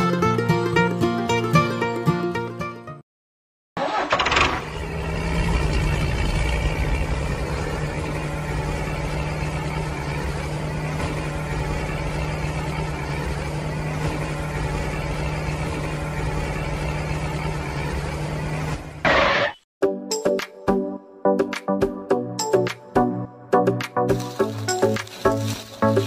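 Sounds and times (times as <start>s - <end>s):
toy tractor engine drone: 3.8s - 18.1s.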